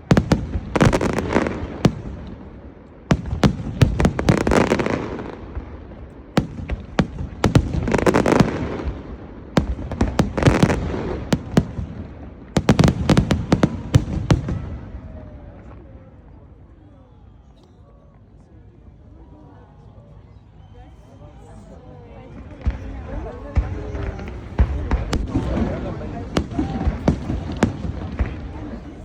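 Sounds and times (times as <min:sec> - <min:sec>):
fireworks bangs and cracks: 0:00.0 - 0:15.9, 0:22.4 - 0:29.0.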